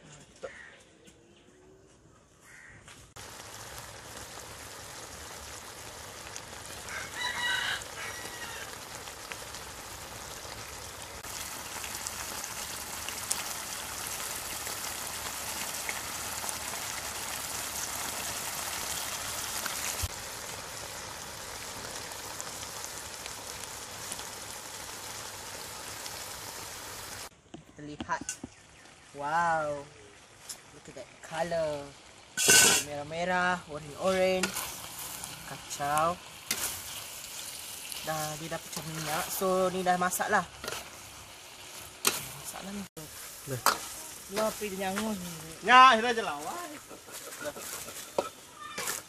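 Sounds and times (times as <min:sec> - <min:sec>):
stew sizzling in a wok: 0:02.5 - 0:27.4, 0:28.0 - 0:49.0
rooster crowing: 0:06.8 - 0:08.9.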